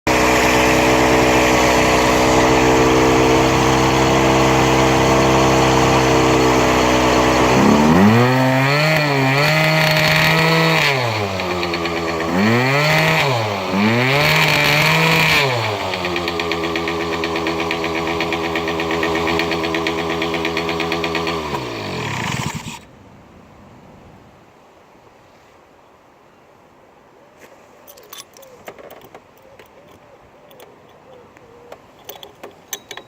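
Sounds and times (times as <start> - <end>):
scooter engine idling and revving: 0.1 - 22.9.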